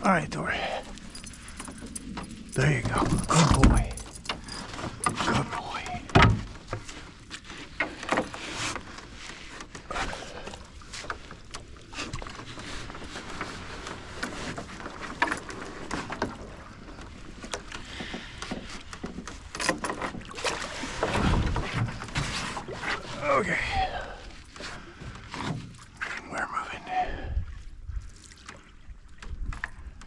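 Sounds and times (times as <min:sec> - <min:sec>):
canoe knocks and scrapes: 0:02.8 - 0:11.3, 0:11.9 - 0:23.2, 0:24.5 - 0:25.9.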